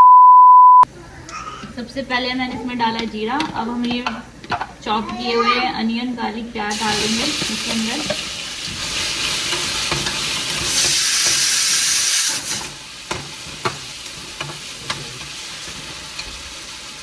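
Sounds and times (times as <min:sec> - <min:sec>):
onions sizzling in hot oil: 0:06.7 - 0:17.0
spoon knocking against pan: 0:09.4 - 0:11.4, 0:13.0 - 0:16.4.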